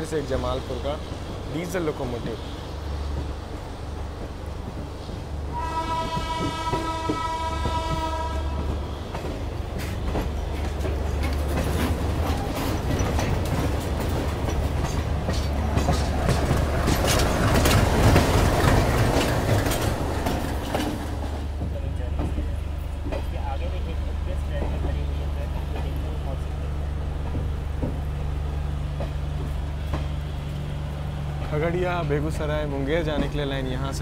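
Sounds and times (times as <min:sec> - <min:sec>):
train low running rumble: 0:00.0 - 0:34.0
train wheels clattering over rail joints: 0:00.3 - 0:34.0
train horn blast: 0:05.5 - 0:08.8.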